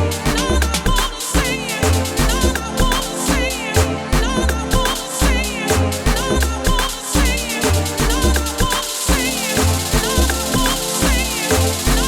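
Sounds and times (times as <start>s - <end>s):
electronic house music: 0.0s - 12.0s.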